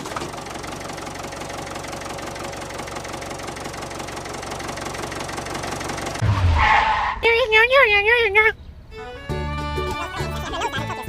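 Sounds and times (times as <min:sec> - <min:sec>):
small engine clattering: 0:00.0 - 0:06.2.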